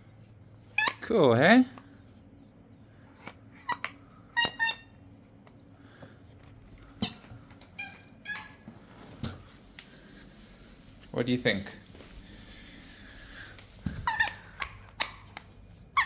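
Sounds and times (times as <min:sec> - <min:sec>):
toy ball electronic squeaks: 0:03.6 - 0:05.0, 0:14.0 - 0:15.2.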